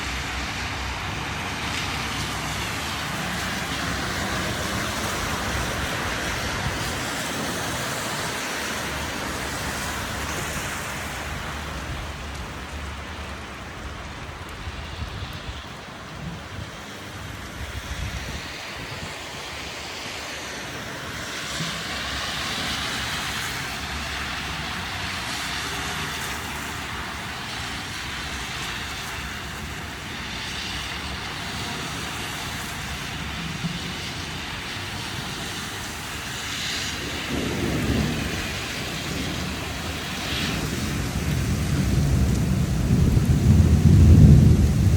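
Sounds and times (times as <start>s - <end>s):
heavy rain hissing: 0.0s - 44.9s
thunder rumble: 21.3s - 44.9s.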